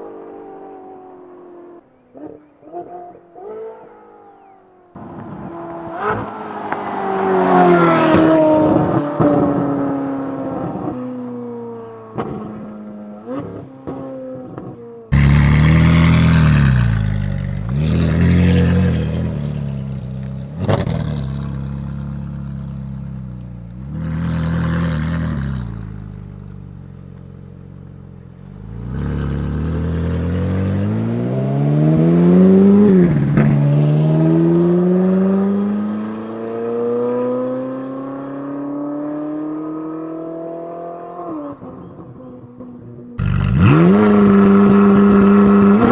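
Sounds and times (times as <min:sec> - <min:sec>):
sports car engine revving: 0:02.0 - 0:45.9
exhaust pops on overrun: 0:15.1 - 0:26.6, 0:43.2 - 0:45.9.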